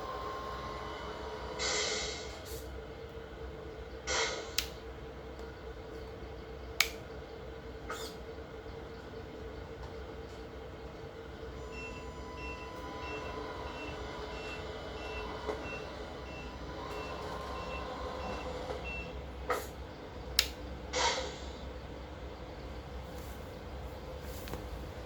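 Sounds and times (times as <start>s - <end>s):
diesel engine hum through speaker: 0.0s - 25.0s
reversing beeper: 11.6s - 19.2s
sharp clicks: 20.4s - 20.6s.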